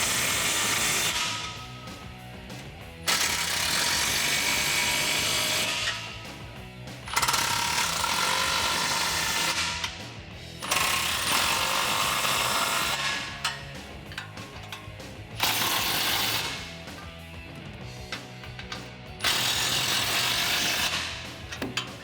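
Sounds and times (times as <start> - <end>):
power tool driving nuts: 0.0 - 1.9, 3.1 - 6.3, 7.1 - 10.0, 10.6 - 17.2, 18.0 - 22.0.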